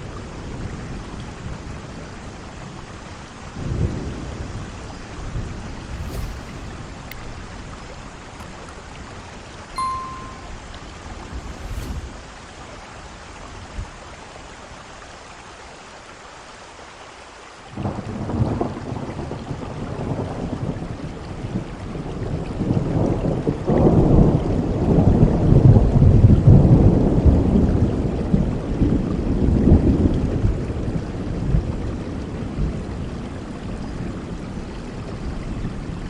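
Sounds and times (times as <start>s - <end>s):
steady rain: 0.0s - 9.8s, 10.8s - 36.0s
thunder crack and rumble: 17.8s - 32.9s.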